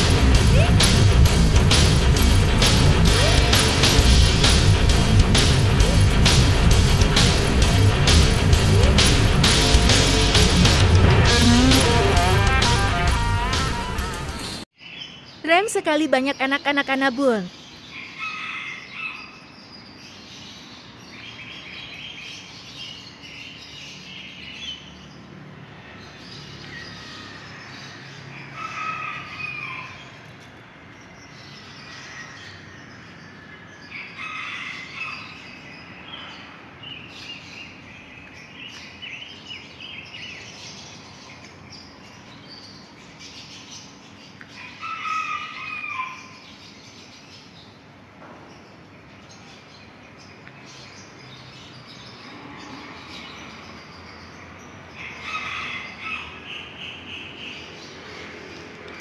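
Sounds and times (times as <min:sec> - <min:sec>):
birds chirping and calling: 0:00.0 - 0:59.0.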